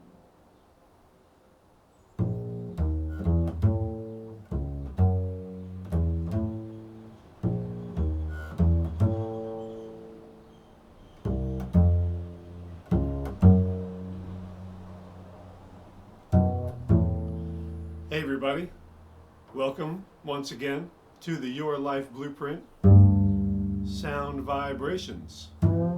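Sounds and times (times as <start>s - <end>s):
low plucked notes: 2.2s - 10.3s, 11.2s - 19.4s, 22.8s - 25.9s.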